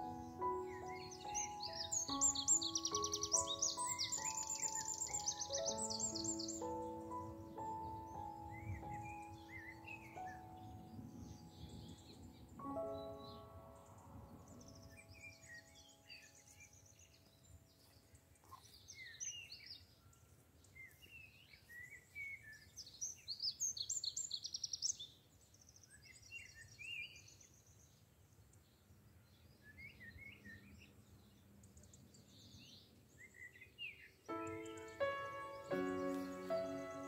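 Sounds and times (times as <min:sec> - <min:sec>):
songbirds singing and chirping: 0:00.0 - 0:37.0.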